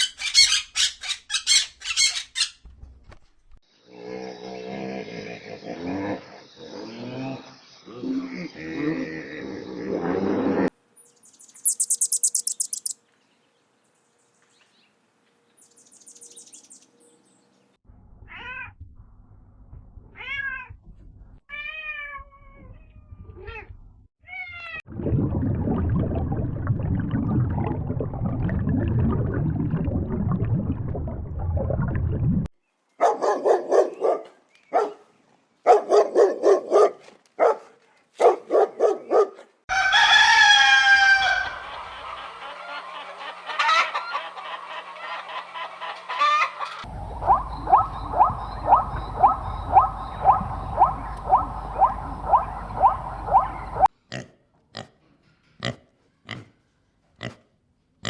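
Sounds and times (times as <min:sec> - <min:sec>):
rapid pulsed animal calls: 0:11.2 - 0:13.0, 0:46.8 - 0:53.9
low rumbling noise: 0:46.9 - 0:53.9.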